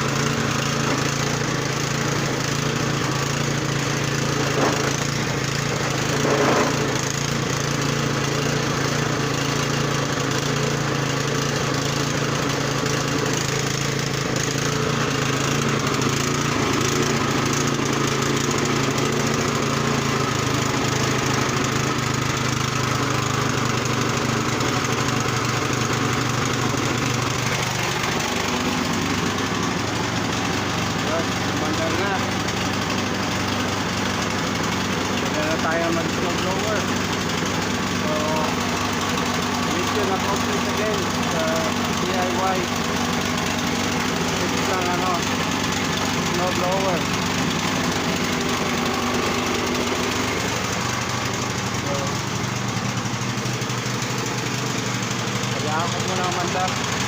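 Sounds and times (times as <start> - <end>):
snow blower engine running: 0.0 - 57.0.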